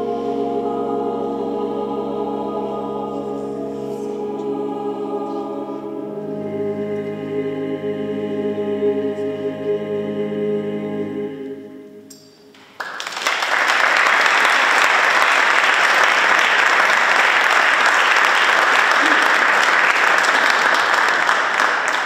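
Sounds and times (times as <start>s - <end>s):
choir singing final chord: 0.0s - 12.1s
audience applause: 12.8s - 22.0s.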